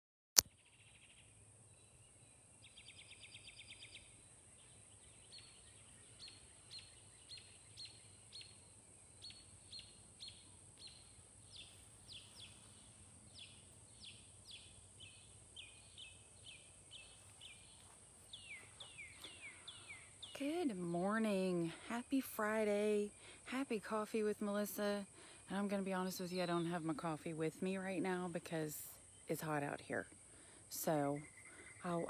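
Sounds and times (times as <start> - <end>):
bird chirping: 0.4 - 21.9.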